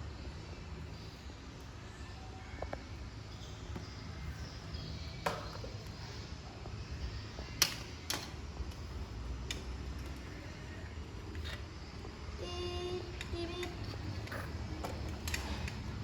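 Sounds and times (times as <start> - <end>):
toy cars clicking and knocking: 13.0 - 16.0.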